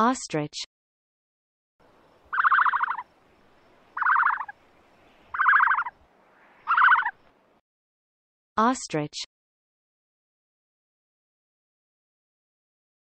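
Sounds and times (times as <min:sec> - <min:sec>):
bird rattling calls: 0:01.9 - 0:07.3.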